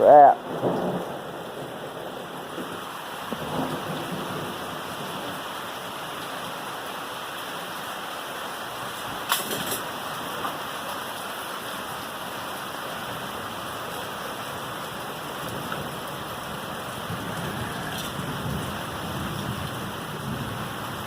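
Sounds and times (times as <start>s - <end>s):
thunder rumble: 0.0s - 5.5s, 14.9s - 21.0s
heavy rain downpour: 0.0s - 21.0s.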